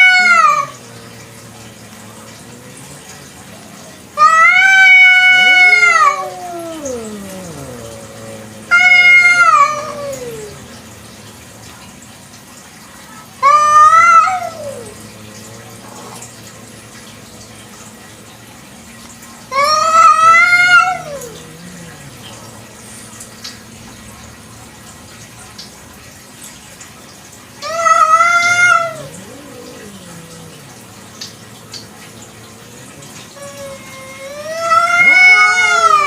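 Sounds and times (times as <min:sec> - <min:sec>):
cat meowing loudly: 0:00.0 - 0:01.0, 0:04.2 - 0:10.6, 0:19.5 - 0:22.5, 0:27.6 - 0:30.8, 0:33.4 - 0:36.0.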